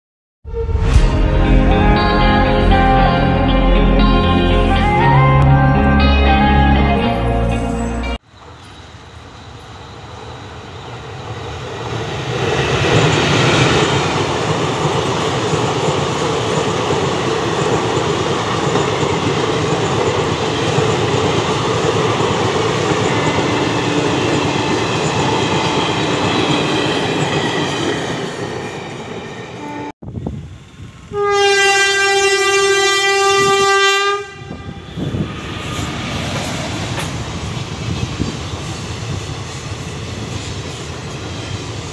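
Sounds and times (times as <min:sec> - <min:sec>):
train wheel rumble: 0:10.4 - 0:41.9
locomotive horn blast: 0:23.0 - 0:24.8, 0:29.6 - 0:29.9, 0:31.1 - 0:35.2.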